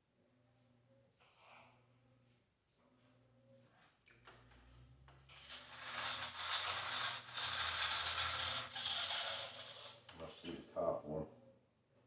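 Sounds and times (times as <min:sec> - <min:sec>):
small electric motor buzzing: 0:05.4 - 0:10.0.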